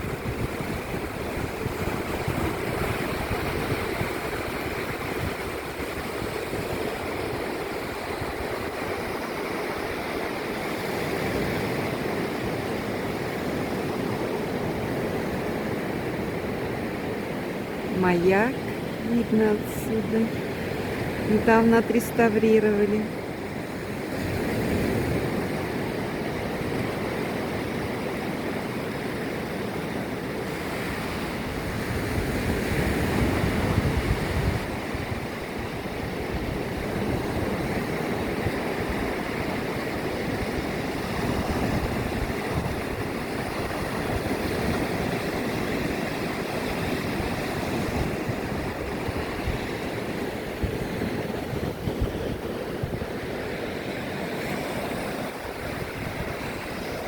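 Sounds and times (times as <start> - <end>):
surf washing onto shore: 0.0 - 57.0
wind on microphone: 0.0 - 57.0.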